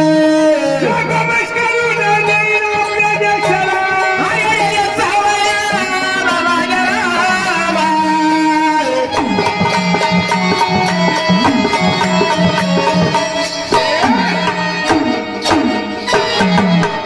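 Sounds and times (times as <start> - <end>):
hand drum rhythm: 9.1 - 17.0.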